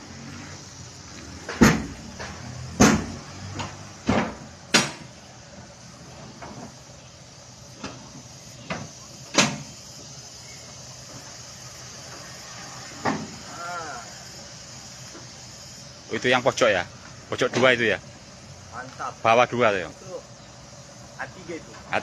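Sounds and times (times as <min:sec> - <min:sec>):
wooden crate knocks and bangs: 0:01.5 - 0:02.0, 0:02.8 - 0:03.2.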